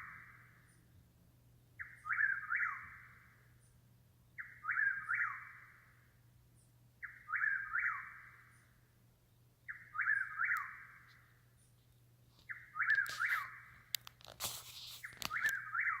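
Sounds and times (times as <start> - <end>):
bird whistling phrase: 12.8 - 13.6.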